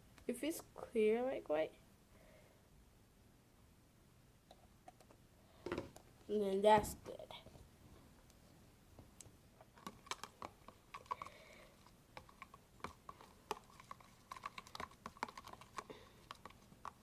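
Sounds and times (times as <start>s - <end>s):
utensil stirring slime: 9.6s - 17.0s.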